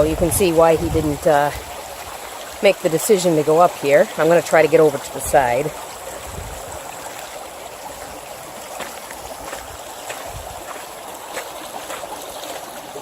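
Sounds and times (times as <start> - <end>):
stream of running water: 0.0 - 13.0
faint footsteps: 6.1 - 12.9.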